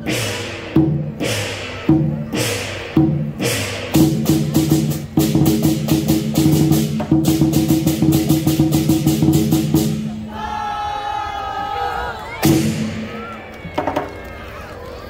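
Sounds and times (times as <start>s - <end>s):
cymbal strokes: 0.0s - 7.0s
drum beating: 0.0s - 10.3s, 12.4s - 14.3s.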